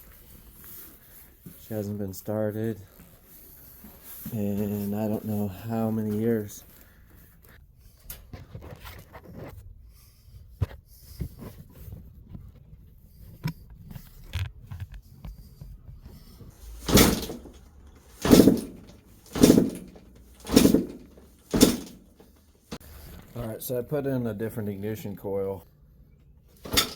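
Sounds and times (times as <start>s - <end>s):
small clicks and scrapes: 10.6s - 23.4s
dirt bike kick-start turn-over: 16.6s - 22.8s, 26.6s - 26.9s.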